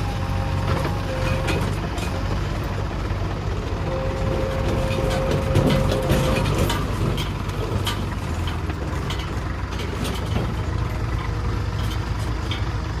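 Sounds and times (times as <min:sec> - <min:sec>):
diesel engine running: 0:00.0 - 0:13.0
short clanks and knocks: 0:04.2 - 0:12.7.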